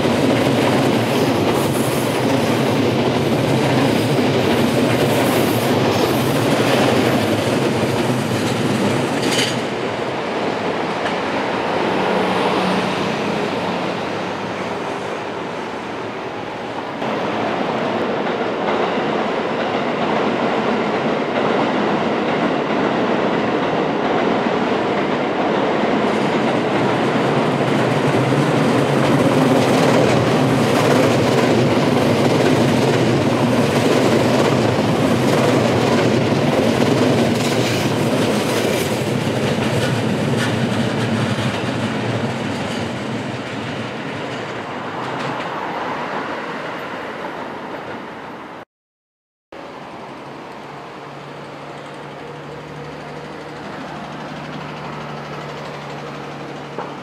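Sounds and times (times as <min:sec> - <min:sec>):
train wheels clicking over rail joints: 0:00.0 - 0:09.8, 0:18.2 - 0:45.7, 0:51.4 - 0:57.0.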